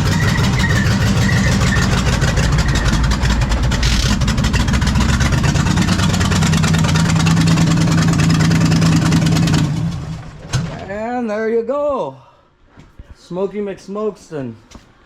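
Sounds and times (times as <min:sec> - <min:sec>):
race car engine running: 0:00.0 - 0:10.4.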